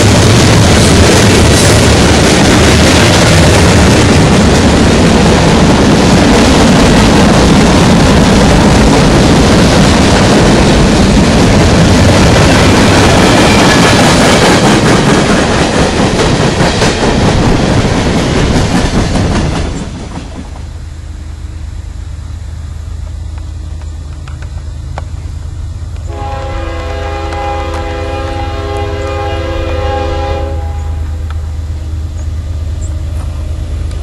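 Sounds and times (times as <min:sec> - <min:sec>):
train wheels clattering over rail joints: 0:00.0 - 0:20.8
low diesel rumble: 0:20.4 - 0:34.0
locomotive air horn: 0:26.1 - 0:31.2.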